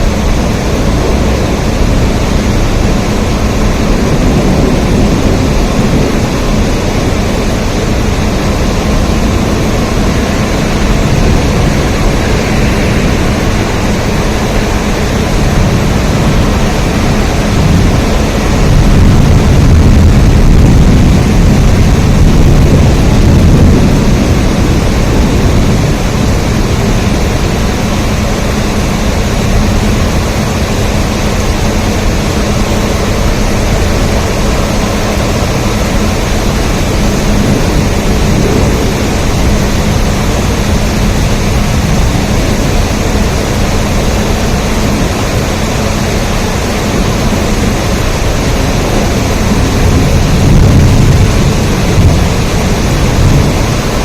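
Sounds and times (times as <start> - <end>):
deep low rumble: 0.0 - 54.0
loud rain: 0.0 - 54.0.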